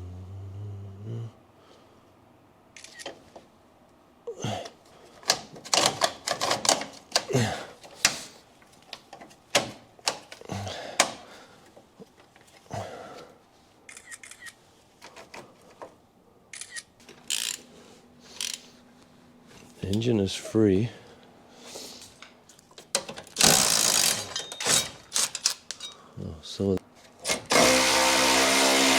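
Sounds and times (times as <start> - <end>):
metal tools clicking and clanking: 22.0 - 26.1.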